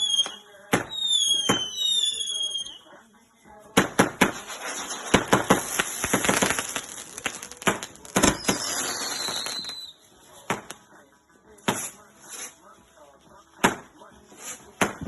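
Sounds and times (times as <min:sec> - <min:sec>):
falling firework whistle: 0:00.0 - 0:02.8, 0:08.2 - 0:10.0
fireworks bangs: 0:00.0 - 0:02.8, 0:03.7 - 0:09.9
fireworks crackling: 0:00.0 - 0:02.9, 0:03.7 - 0:10.9, 0:11.6 - 0:12.6.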